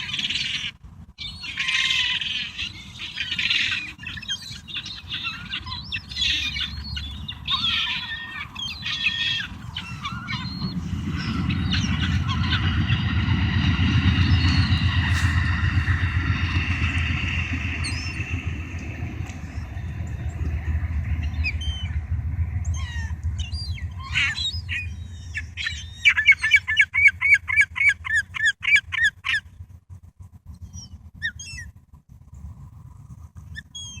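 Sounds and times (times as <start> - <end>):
gulls squawking: 0.0 - 29.4
low rumble: 5.0 - 26.6.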